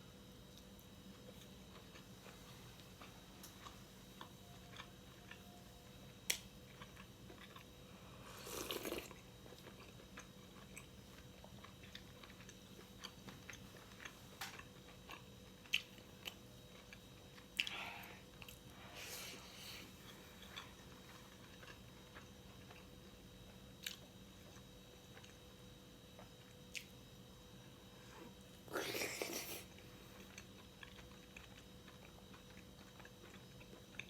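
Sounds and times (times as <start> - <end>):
person chewing food: 0.6 - 27.0, 28.1 - 34.0.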